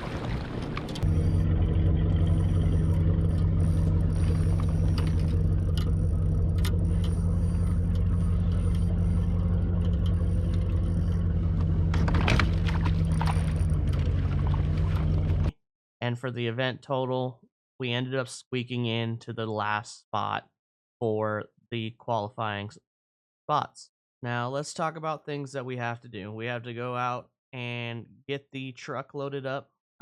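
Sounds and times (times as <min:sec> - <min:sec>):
low motor drone: 0:00.0 - 0:15.5.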